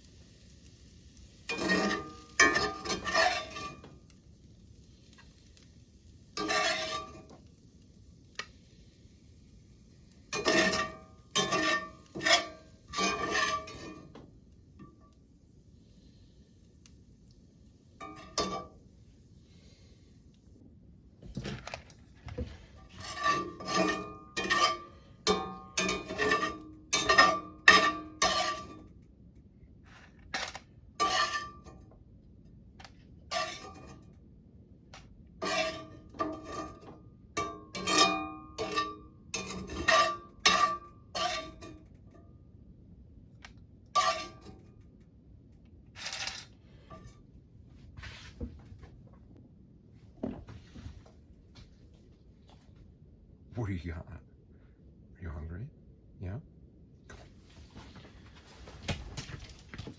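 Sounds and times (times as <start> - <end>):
metal cookware clinking: 1.5 - 4.0, 6.4 - 7.4, 10.3 - 14.2, 18.0 - 18.8, 23.0 - 28.9, 31.0 - 31.8, 35.4 - 41.8, 44.0 - 44.6.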